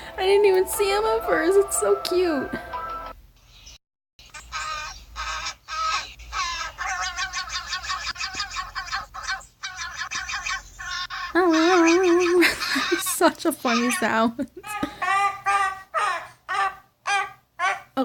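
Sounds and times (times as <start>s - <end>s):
bird squawking: 4.2s - 18.0s.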